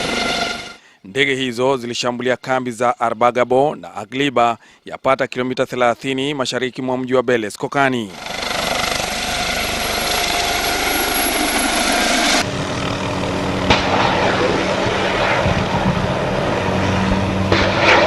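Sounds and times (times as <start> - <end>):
helicopter engine and rotors: 0.0 - 0.8, 8.1 - 18.0
high turbine whine: 0.0 - 0.8, 8.1 - 18.0.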